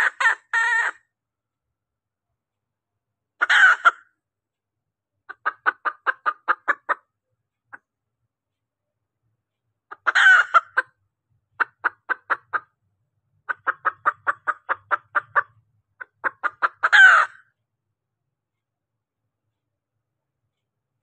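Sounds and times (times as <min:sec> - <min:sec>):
hen clucking: 0:00.0 - 0:01.0, 0:03.4 - 0:04.1, 0:05.3 - 0:07.9, 0:09.9 - 0:11.0, 0:11.6 - 0:12.8, 0:13.5 - 0:17.5
hen squawking: 0:00.0 - 0:01.0, 0:03.4 - 0:04.1, 0:05.3 - 0:07.1, 0:09.9 - 0:11.0, 0:11.6 - 0:12.7, 0:13.5 - 0:17.5.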